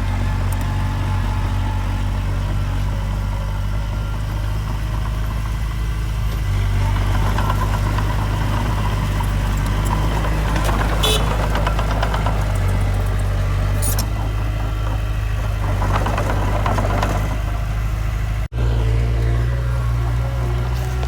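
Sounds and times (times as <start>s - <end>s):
diesel engine running: 0.0s - 21.0s
metallic clanks: 4.6s - 17.7s.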